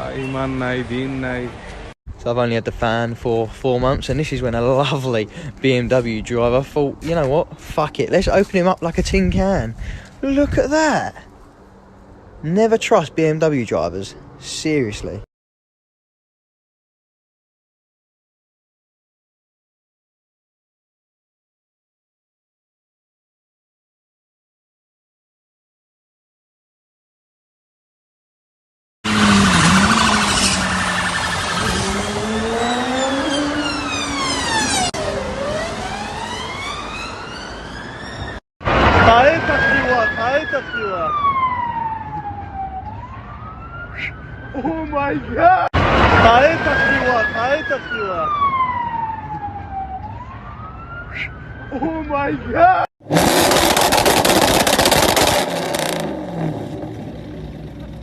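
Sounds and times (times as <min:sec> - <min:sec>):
road noise rushing: 0:00.0 - 0:15.3, 0:29.0 - 0:58.0
car engine revving: 0:29.0 - 0:36.1, 0:53.0 - 0:58.0
emergency vehicle siren wailing: 0:29.1 - 0:52.9.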